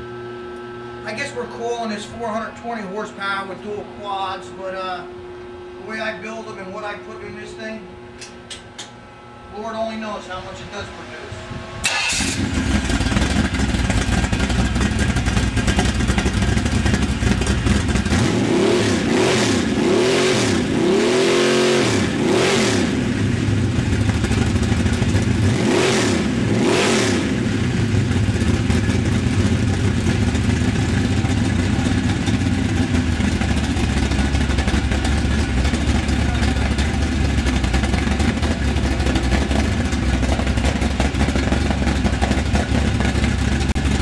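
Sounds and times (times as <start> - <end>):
car engine idling and revving: 11.2 - 44.0.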